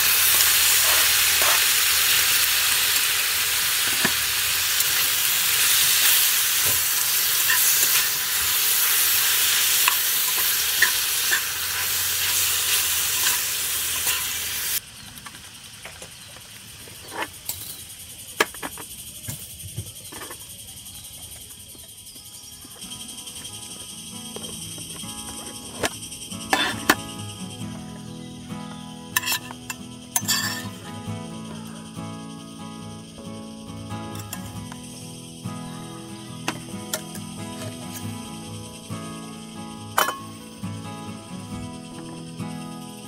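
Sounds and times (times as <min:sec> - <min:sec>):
food sizzling in a pan: 0:00.0 - 0:18.2, 0:28.6 - 0:32.4, 0:34.0 - 0:43.0.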